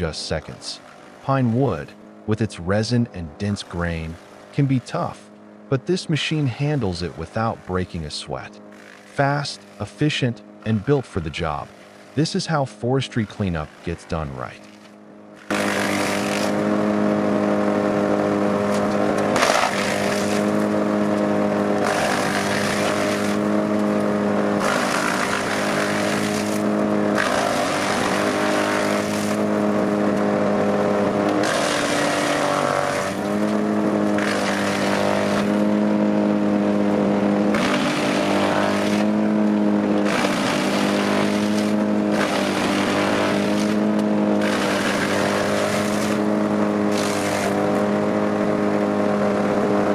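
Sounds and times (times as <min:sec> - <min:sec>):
wood chipper engine running: 0:00.0 - 0:49.9
wood chipping noise: 0:08.7 - 0:09.9, 0:13.3 - 0:16.7, 0:18.7 - 0:29.6, 0:31.2 - 0:35.8, 0:37.5 - 0:47.9.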